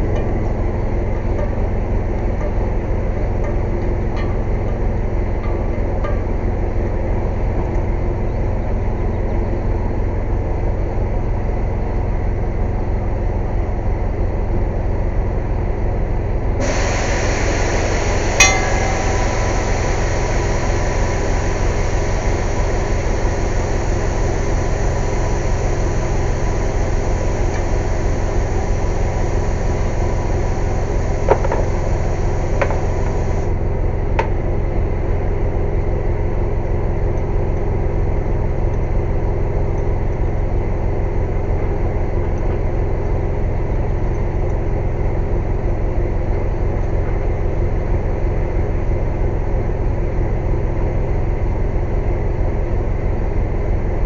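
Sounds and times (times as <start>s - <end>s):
air compressor droning: 16.5s - 33.7s
rushing air hiss: 16.6s - 33.5s
sharp metallic clink: 18.3s - 23.0s.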